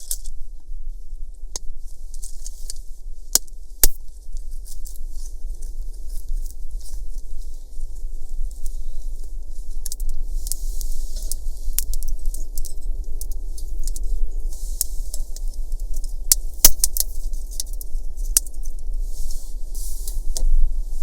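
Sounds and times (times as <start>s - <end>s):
wood fire crackling: 1.3s - 21.0s
fire sharp snaps: 9.8s - 14.0s, 14.6s - 18.9s.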